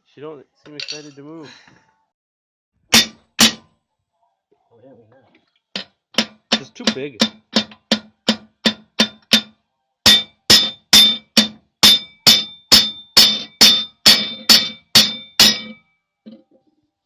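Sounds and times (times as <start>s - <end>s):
hammer striking metal: 2.9s - 3.7s, 5.8s - 15.8s.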